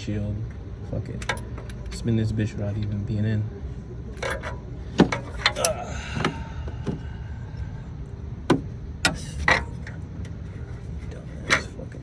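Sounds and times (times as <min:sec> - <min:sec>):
tools clinking against engine: 0:01.0 - 0:02.1, 0:04.1 - 0:07.0.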